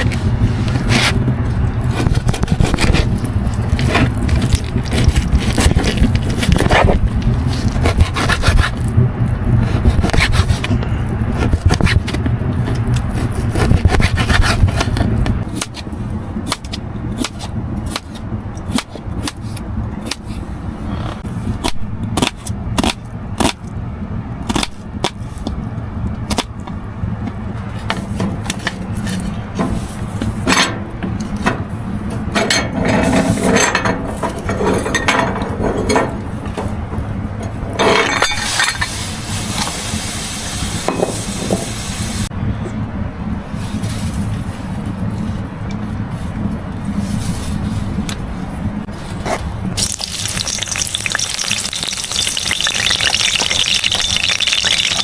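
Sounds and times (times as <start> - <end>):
scraping and rubbing on wood: 1.8 - 9.0.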